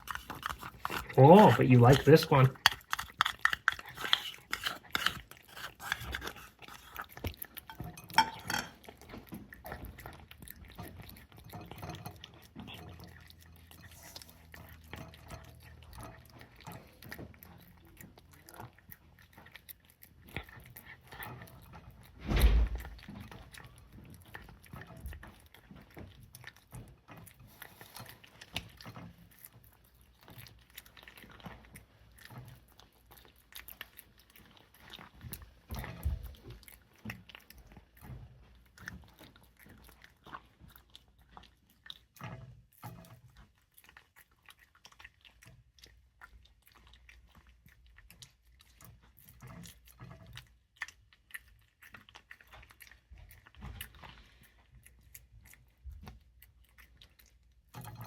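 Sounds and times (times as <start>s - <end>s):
cat crunching food: 0.0s - 58.0s
loud thump: 22.2s - 22.9s.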